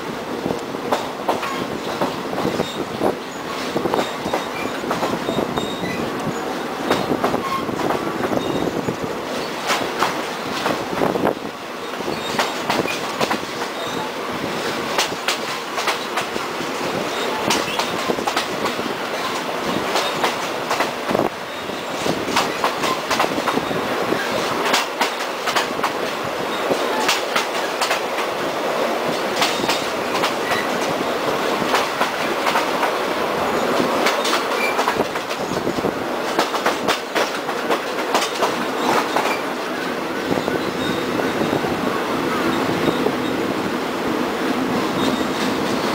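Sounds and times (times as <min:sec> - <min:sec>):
train wheels rumbling on rail: 0:00.0 - 0:45.9
wheels clicking over rail joints: 0:11.8 - 0:21.3, 0:21.9 - 0:39.8.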